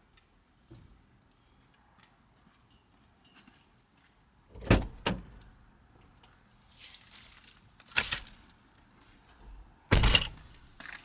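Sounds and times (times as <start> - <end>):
short rustle: 6.7 - 8.5.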